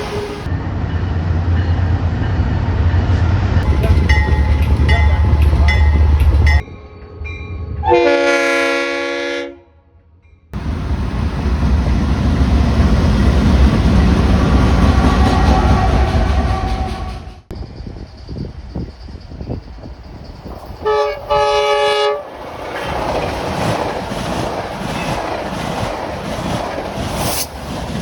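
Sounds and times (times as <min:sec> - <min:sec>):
freight train rumbling: 0:00.0 - 0:09.5, 0:10.6 - 0:28.0
wheels clicking over rail joints: 0:03.6 - 0:06.6
locomotive air horn: 0:07.8 - 0:09.8, 0:20.8 - 0:22.2.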